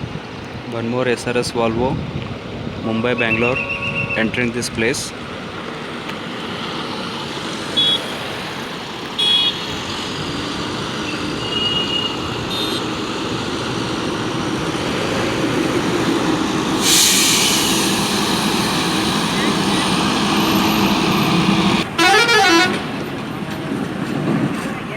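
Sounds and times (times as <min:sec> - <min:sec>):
road traffic: 0:00.0 - 0:24.9
bus engine running: 0:02.0 - 0:24.9
loud air hissing: 0:10.1 - 0:22.6
short high horn toots: 0:16.8 - 0:22.9.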